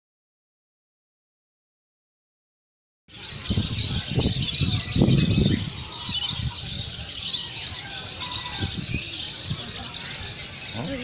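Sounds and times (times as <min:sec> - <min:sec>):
songbirds chorus twittering: 0:03.1 - 0:11.0.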